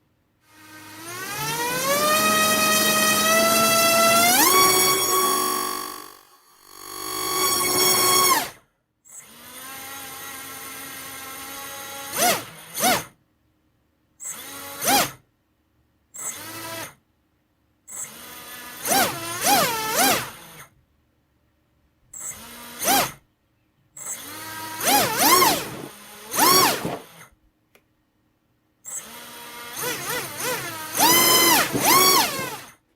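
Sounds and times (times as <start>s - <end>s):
drone motor whining: 0.7s - 8.6s, 24.5s - 27.1s, 29.0s - 32.8s.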